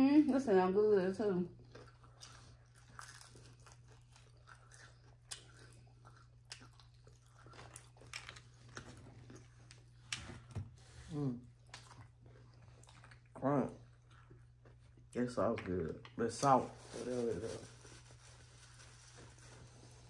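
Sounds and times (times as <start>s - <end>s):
crunchy chewing: 1.6s - 10.5s.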